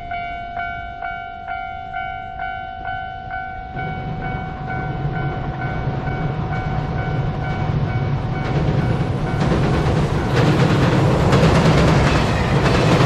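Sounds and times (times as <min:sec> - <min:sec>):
level crossing bell dinging: 0:00.0 - 0:08.2
freight train rumble: 0:00.0 - 0:13.0.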